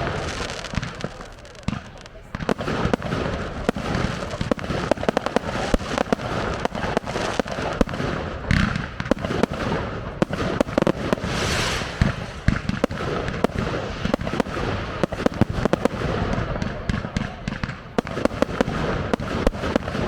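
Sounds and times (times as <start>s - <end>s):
fireworks hissing bursts: 0.0s - 16.2s
fireworks bangs and crackles: 0.0s - 20.0s.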